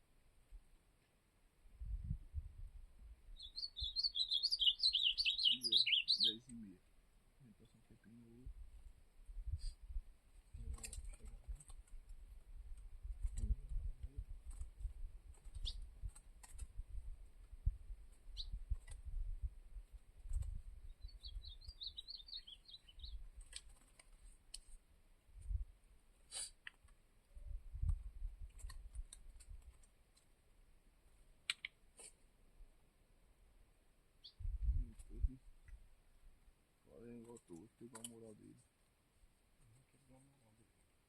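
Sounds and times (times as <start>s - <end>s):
small songbird chirping: 3.3s - 6.7s, 15.4s - 16.2s, 18.2s - 19.0s, 19.8s - 23.4s, 34.2s - 35.4s.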